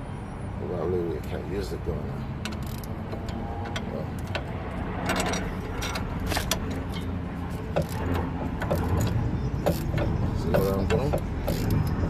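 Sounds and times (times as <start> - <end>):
wrench clicking and knocking on bolt: 2.4 - 7.1, 7.7 - 12.0.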